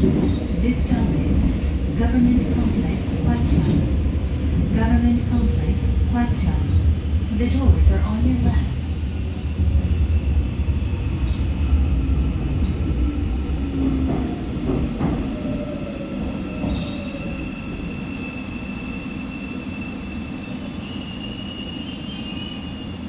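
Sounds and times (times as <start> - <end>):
train wheel and track rumble: 0.0 - 23.0.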